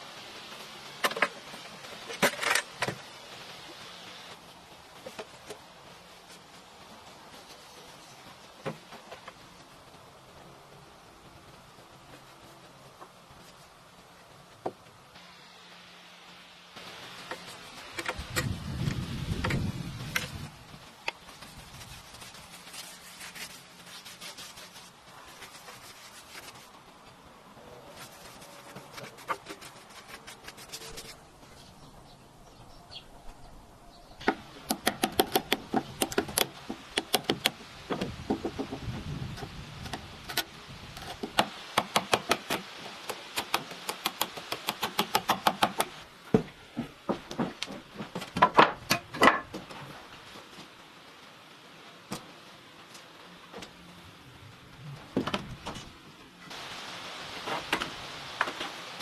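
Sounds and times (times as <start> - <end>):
hand tools scraping and knocking wood: 1.0 - 3.0, 17.1 - 26.8, 27.9 - 31.2, 34.2 - 50.0.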